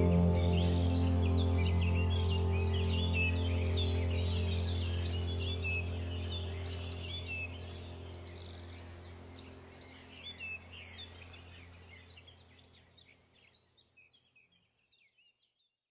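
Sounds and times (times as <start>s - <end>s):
deep low drone: 0.0s - 12.4s
small birds chirping: 0.0s - 15.7s.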